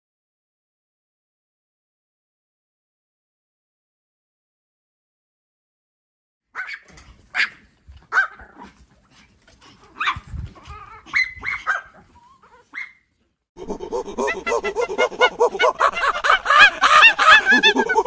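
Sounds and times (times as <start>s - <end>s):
animal honking calls: 6.6s - 8.5s
dog yipping and barking: 6.6s - 13.1s.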